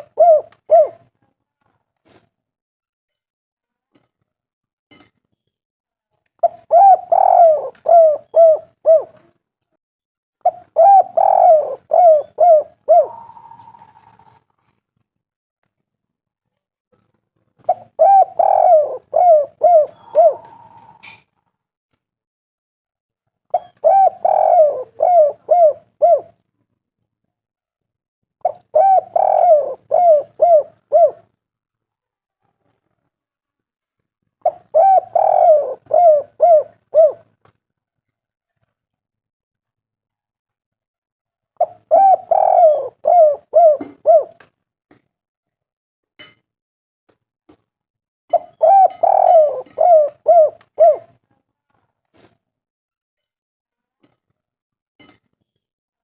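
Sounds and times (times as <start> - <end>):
dove cooing: 0.0 - 1.1, 6.4 - 9.3, 10.4 - 14.4, 17.7 - 21.2, 23.5 - 26.4, 28.4 - 31.4, 34.4 - 37.3, 41.6 - 44.4, 48.3 - 51.2.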